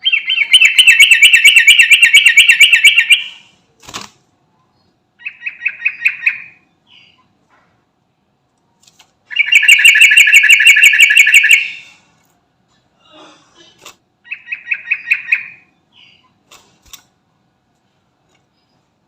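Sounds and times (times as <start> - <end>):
bird singing a rolling trill: 0.0 - 3.4, 4.8 - 7.3, 9.3 - 12.0, 14.2 - 16.3.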